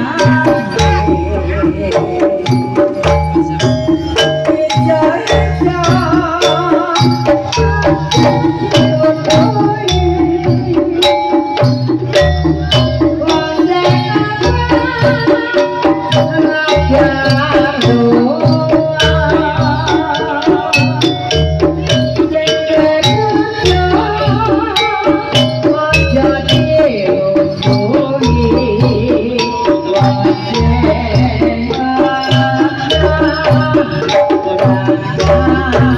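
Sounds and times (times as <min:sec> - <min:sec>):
wavering melody line: 0:00.0 - 0:27.2
hand drums and percussion: 0:00.0 - 0:35.9.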